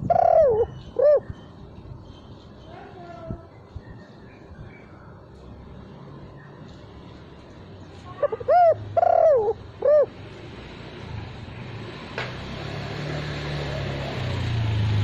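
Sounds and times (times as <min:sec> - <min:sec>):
dove cooing: 0:00.0 - 0:01.3, 0:08.2 - 0:10.2.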